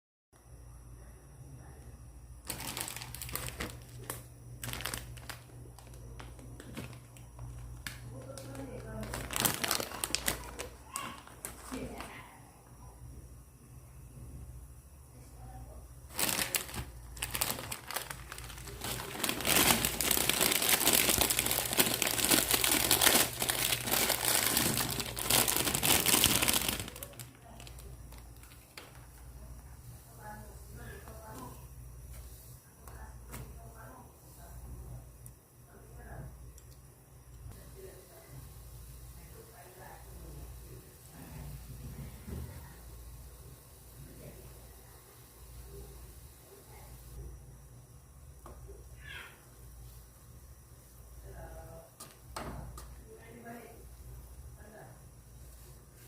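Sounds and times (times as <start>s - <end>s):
steady low hum: 0.4s - 56.0s
plastic packaging crinkling: 2.4s - 12.2s, 16.1s - 29.2s.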